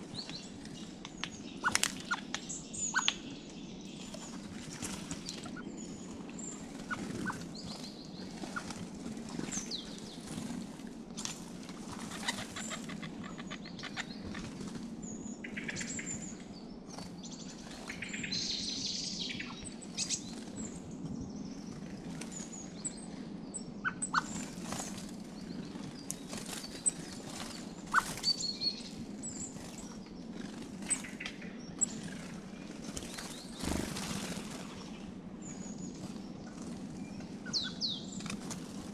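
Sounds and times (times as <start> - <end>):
songbirds chirping: 0.0 - 38.9
steady low hum: 0.0 - 38.9
wing flutters: 0.6 - 2.4, 4.1 - 15.0, 24.1 - 38.9.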